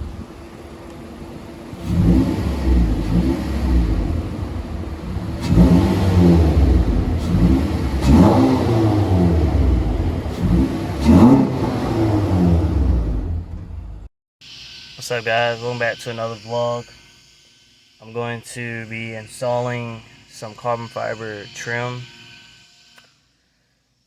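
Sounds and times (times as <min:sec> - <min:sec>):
car engine revving: 0:00.0 - 0:14.1.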